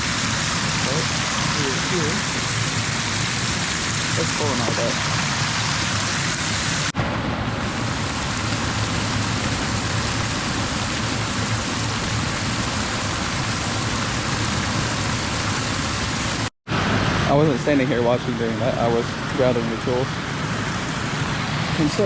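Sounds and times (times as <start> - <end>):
creek water rushing: 7.0 - 16.5.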